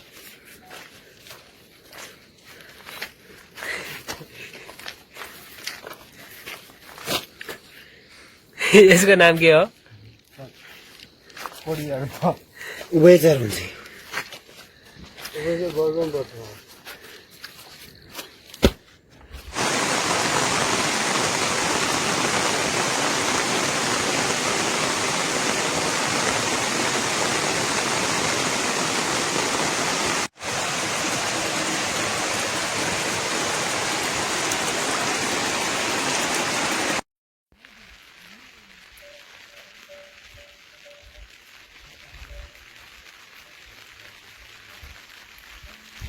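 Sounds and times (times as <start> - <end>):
rush of falling water: 19.5 - 37.0.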